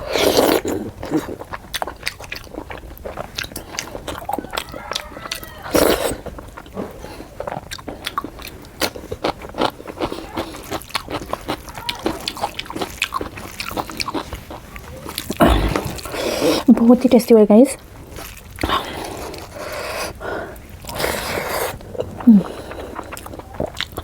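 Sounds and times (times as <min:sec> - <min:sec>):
wet chewing and lip smacks: 0:00.0 - 0:16.8, 0:18.1 - 0:24.0
crunchy bite: 0:15.2 - 0:16.6.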